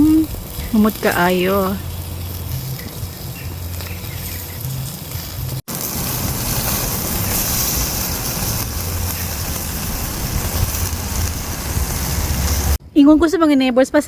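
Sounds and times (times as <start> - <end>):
low rumble: 0.0 - 12.8
meat sizzling on a barbecue: 0.0 - 12.8.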